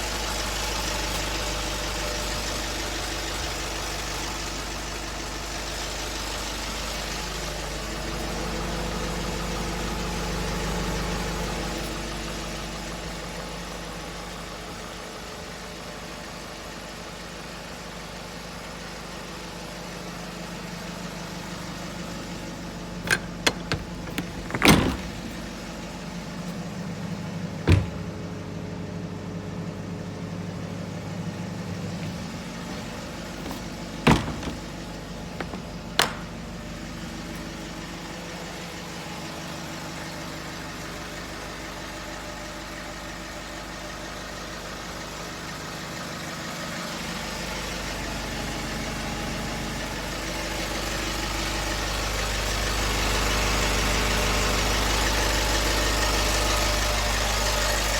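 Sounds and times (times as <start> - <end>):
truck engine idling: 20.1 - 49.0
sharp clunks: 23.1 - 25.6, 27.6 - 28.3, 32.7 - 36.5.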